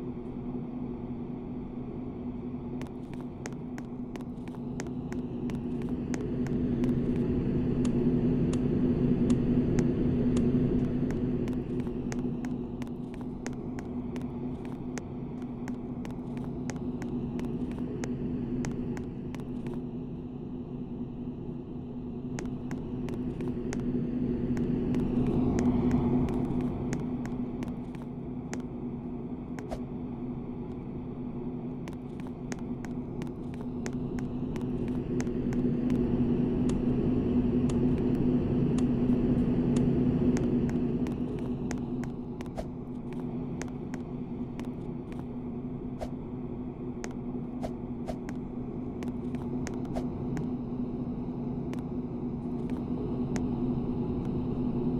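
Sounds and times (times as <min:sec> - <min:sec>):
ceiling fan motor hum: 0:00.0 - 0:54.9
faint irregular clicks: 0:02.8 - 0:19.9, 0:24.5 - 0:28.7, 0:31.8 - 0:36.9, 0:37.6 - 0:45.3, 0:51.7 - 0:53.6.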